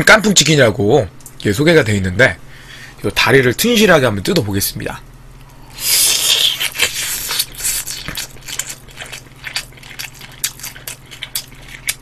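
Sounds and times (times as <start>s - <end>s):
wet crackly chewing: 5.8s - 12.0s.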